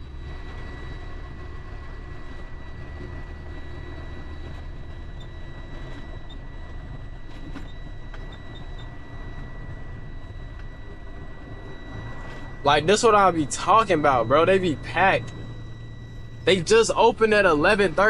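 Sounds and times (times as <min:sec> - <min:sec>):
engine and road rumble: 0:00.0 - 0:18.0
thin high tone: 0:07.6 - 0:18.0.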